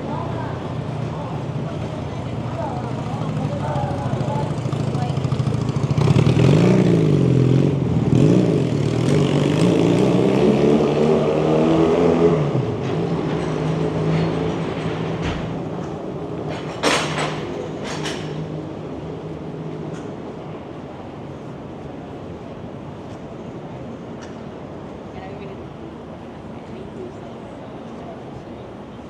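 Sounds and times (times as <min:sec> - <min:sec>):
vehicle engine revving by: 0:05.7 - 0:15.1.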